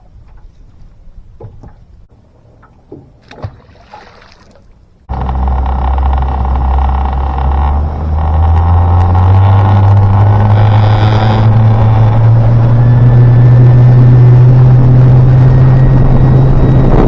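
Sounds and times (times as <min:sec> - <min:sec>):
boat motor running: 0:05.0 - 0:17.0.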